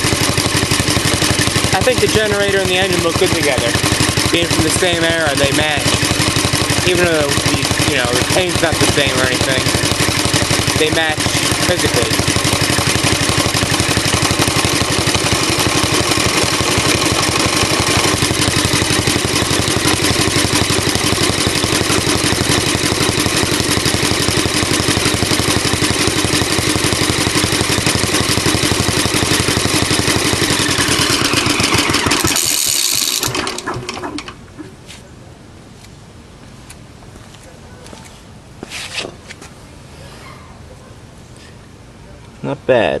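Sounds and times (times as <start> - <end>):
stationary engine running: 0.0 - 34.4
engine shutting down with falling whine: 0.0 - 34.5.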